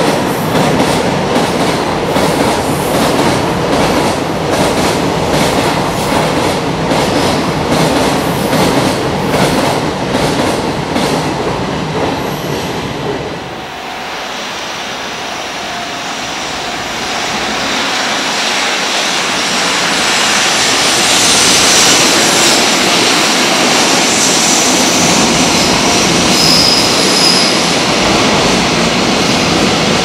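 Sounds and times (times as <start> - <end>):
freight train rumbling past: 0.0 - 30.0.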